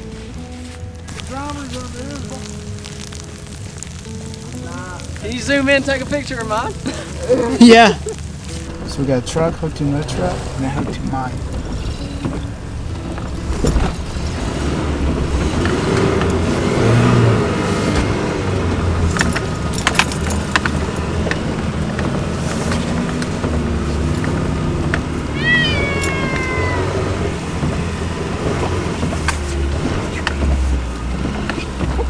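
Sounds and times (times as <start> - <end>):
truck engines revving: 0.0 - 32.0
high squeal falling in pitch: 25.4 - 27.3.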